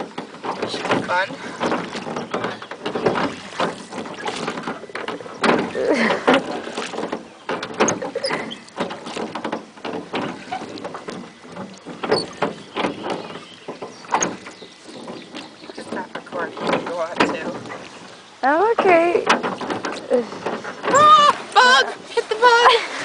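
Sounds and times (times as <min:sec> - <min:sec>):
knocks on boat: 0:00.0 - 0:21.3
oars dipping and splashing: 0:00.0 - 0:23.0
water sloshing against hull: 0:00.0 - 0:23.0.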